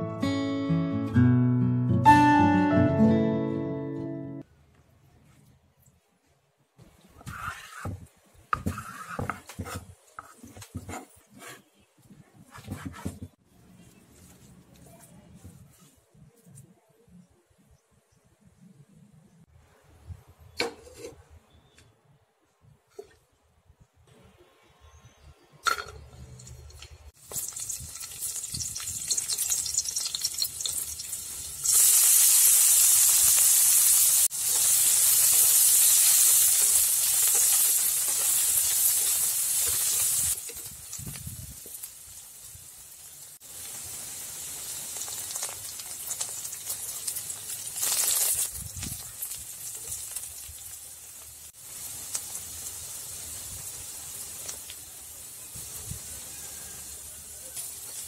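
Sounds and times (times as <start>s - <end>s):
garlic and onions sizzling in oil: 6.8s - 15.8s, 25.2s - 58.0s.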